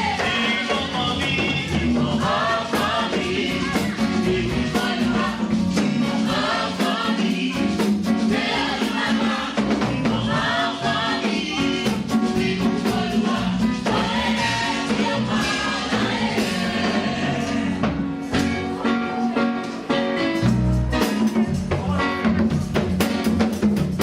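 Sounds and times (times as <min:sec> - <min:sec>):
group singing a gospel song: 0:00.0 - 0:18.2
percussion beat: 0:00.0 - 0:18.8, 0:20.3 - 0:24.0
bass line: 0:20.4 - 0:24.0.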